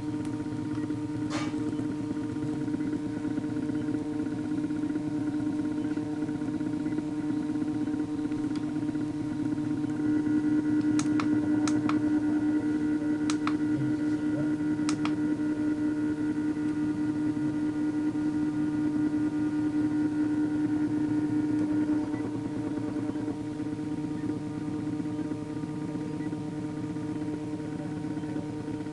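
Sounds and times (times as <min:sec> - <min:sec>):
pump motor whine: 0:00.0 - 0:28.9
sharp clicks: 0:10.8 - 0:12.0, 0:13.2 - 0:13.6, 0:14.8 - 0:15.2.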